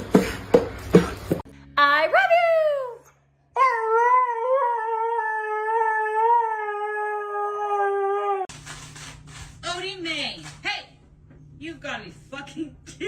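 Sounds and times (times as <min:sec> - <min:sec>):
dog howling: 0:03.6 - 0:08.5.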